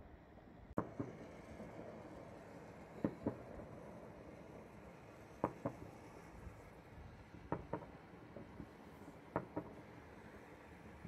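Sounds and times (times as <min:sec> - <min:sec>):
low steady background noise: 0:00.0 - 0:11.0
distant fireworks bangs: 0:00.8 - 0:06.6, 0:07.4 - 0:10.4.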